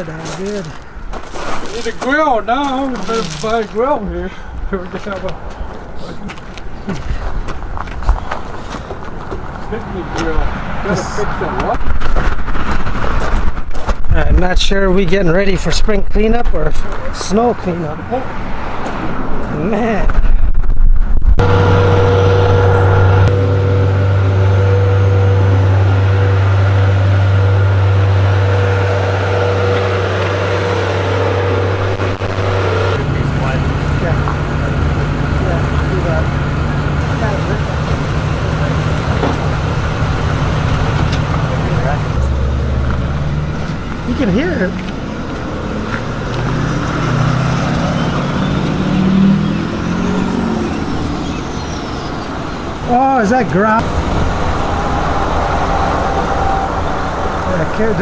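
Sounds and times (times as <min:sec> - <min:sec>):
engine running steadily: 0:21.2 - 0:58.0.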